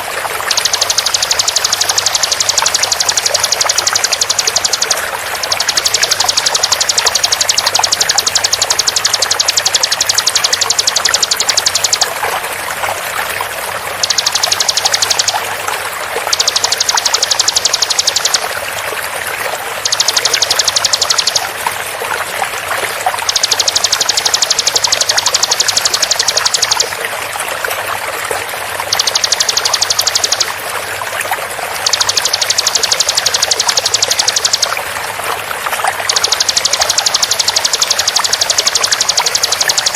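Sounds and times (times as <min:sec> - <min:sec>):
bird trilling song: 0:00.0 - 0:12.1, 0:14.0 - 0:15.4, 0:16.2 - 0:18.5, 0:19.8 - 0:21.6, 0:28.9 - 0:30.6, 0:31.8 - 0:34.8
running water: 0:00.0 - 0:39.9.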